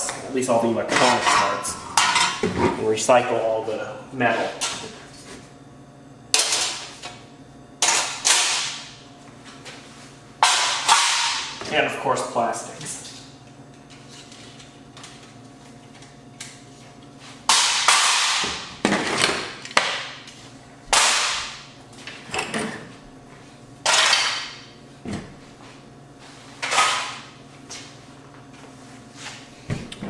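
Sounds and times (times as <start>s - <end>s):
parts clattering on work surface: 0.9s - 2.7s.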